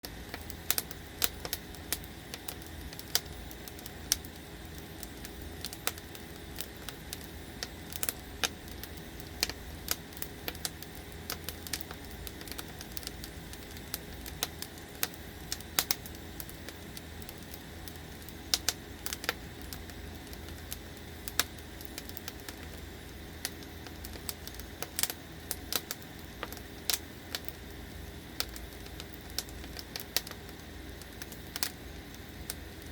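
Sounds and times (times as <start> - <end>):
firewood crackling and popping: 0.0 - 32.9.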